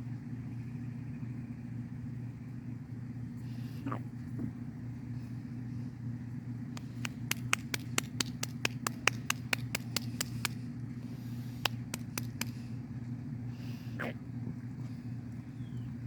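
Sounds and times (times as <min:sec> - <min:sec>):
steady low hum: 0:00.0 - 0:16.0
rapid sharp clicks: 0:06.8 - 0:10.6, 0:11.6 - 0:12.6.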